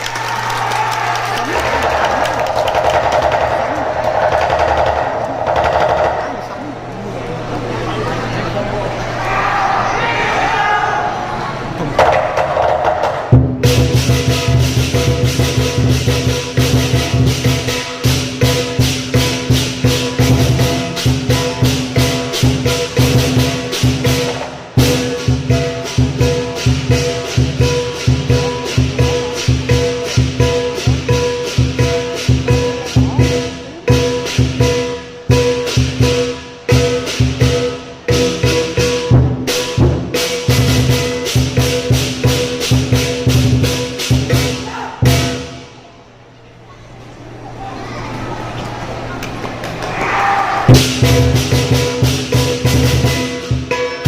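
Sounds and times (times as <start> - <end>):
big drum beating: 1.5 - 6.6, 11.9 - 45.5, 50.6 - 53.8.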